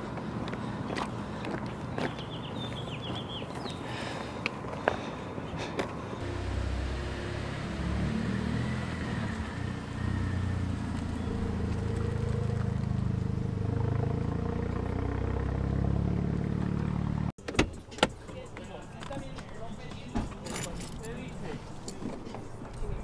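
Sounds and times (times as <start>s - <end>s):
car engine driving off: 6.2s - 17.3s.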